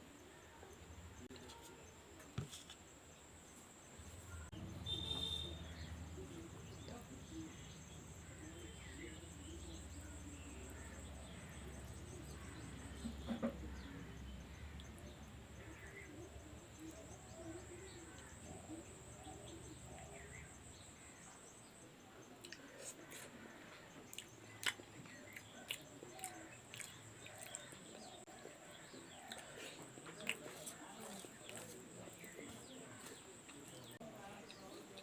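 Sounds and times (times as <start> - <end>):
faint chewing noises: 22.2 - 35.0.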